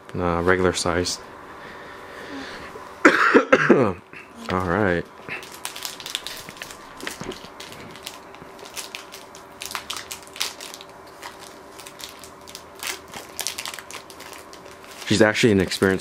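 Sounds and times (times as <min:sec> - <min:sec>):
card pack wrappers crinkling: 0:04.4 - 0:16.0.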